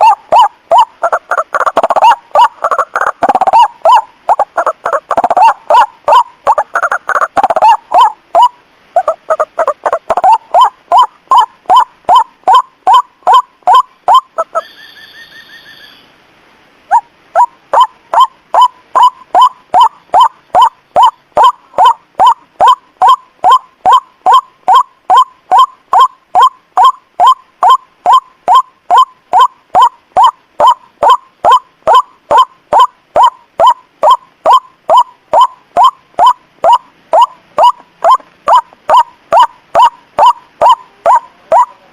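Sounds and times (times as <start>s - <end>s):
faint rapid bird trill: 0.0s - 16.2s, 16.9s - 41.9s
waterhen honking call: 0.0s - 16.2s, 16.9s - 41.9s
bird call short rising notes: 10.1s - 16.2s.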